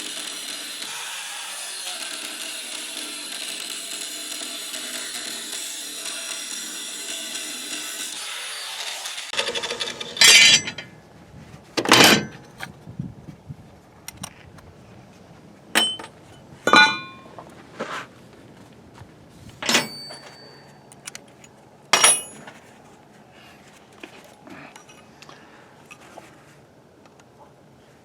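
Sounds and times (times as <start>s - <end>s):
metal tools clanking on workbench: 9.4s - 10.9s, 11.8s - 12.4s, 15.8s - 17.3s, 19.6s - 21.1s, 22.0s - 22.6s, 24.7s - 25.1s.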